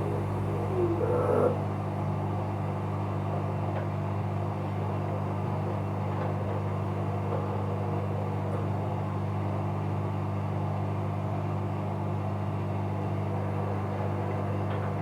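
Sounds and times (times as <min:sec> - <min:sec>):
washing machine running: 0:00.0 - 0:09.8.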